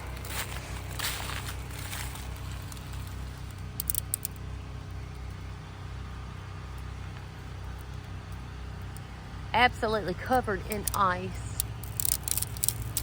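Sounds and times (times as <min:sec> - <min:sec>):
steady low hum: 0:00.0 - 0:13.0
sharp clicks: 0:02.0 - 0:04.4, 0:10.7 - 0:13.0.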